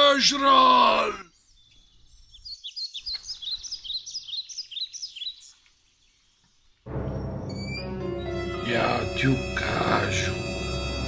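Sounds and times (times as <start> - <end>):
songbird falling chirps: 1.3 - 8.4.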